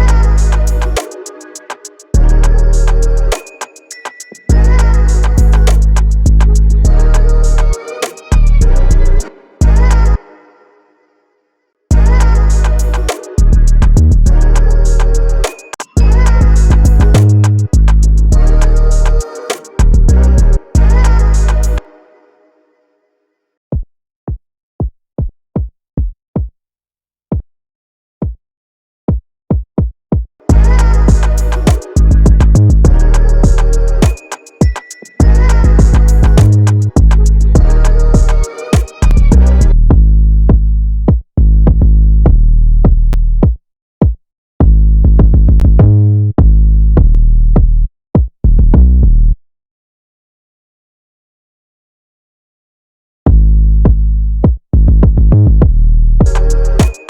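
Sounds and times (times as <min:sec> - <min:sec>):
electronic beat: 0:00.0 - 0:08.9, 0:11.9 - 0:21.8, 0:30.5 - 0:39.7, 0:56.2 - 0:57.0
electronic kick drum thumps: 0:16.0 - 0:18.5, 0:24.3 - 0:26.5, 0:29.5 - 0:48.8, 0:53.3 - 0:57.0.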